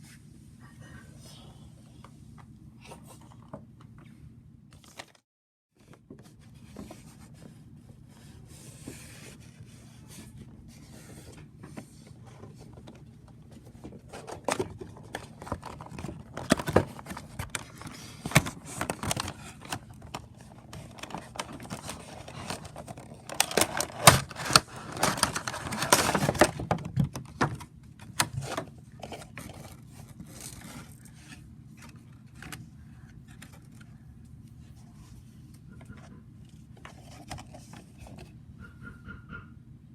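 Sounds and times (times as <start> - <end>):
packaging clicks and scrapes: 12.2 - 32.6
wrapping paper rustling: 14.1 - 27.0.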